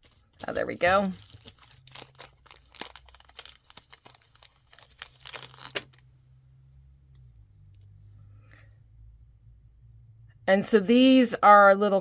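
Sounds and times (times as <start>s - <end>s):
packaging rustling and crackling: 0.0s - 6.0s.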